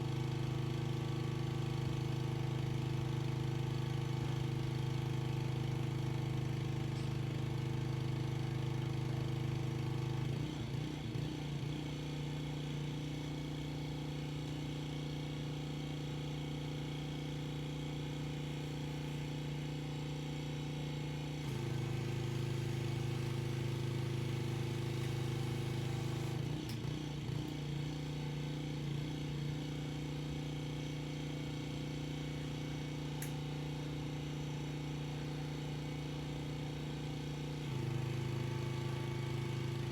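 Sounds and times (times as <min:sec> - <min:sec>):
pressure washer engine running: 0:21.5 - 0:26.4.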